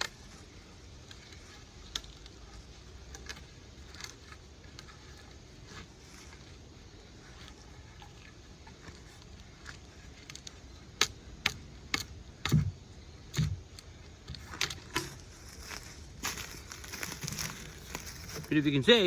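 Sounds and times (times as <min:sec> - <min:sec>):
wood cracking and knocking: 0:08.7 - 0:18.6
dull thuds: 0:11.0 - 0:18.5.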